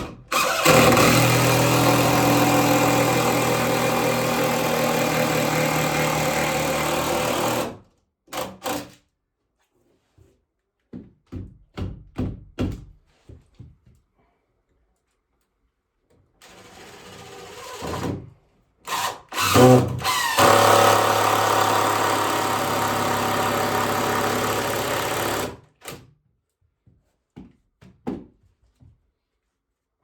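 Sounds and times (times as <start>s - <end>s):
electric drill running: 0.3s - 7.7s, 18.9s - 25.6s.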